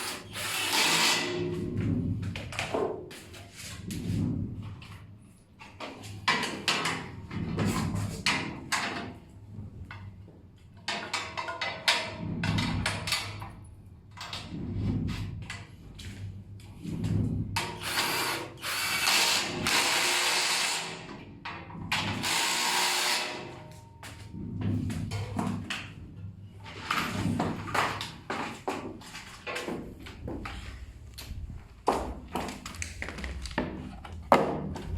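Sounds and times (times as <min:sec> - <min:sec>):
power drill running: 0:00.0 - 0:01.3, 0:17.8 - 0:21.0, 0:22.2 - 0:23.5
knocks and clicks of parts and tools: 0:00.7 - 0:18.1, 0:21.1 - 0:22.4, 0:23.3 - 0:34.9.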